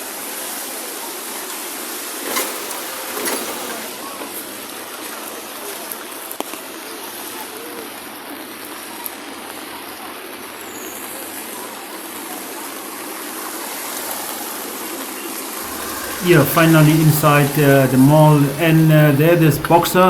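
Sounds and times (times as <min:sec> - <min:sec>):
heavy rain hissing: 0:02.0 - 0:05.0, 0:15.6 - 0:20.0.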